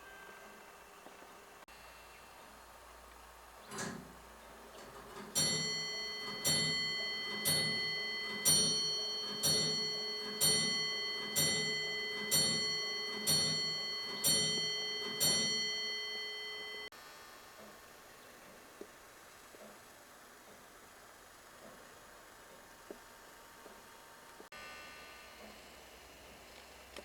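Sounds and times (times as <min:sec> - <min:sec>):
clock bell striking: 0:03.7 - 0:04.1, 0:04.7 - 0:16.9.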